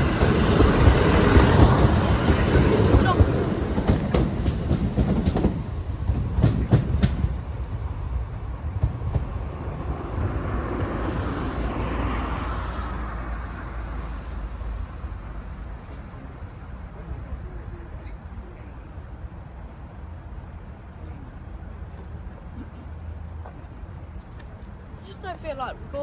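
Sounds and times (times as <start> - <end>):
train wheels clacking over rail joints: 0.0 - 7.4.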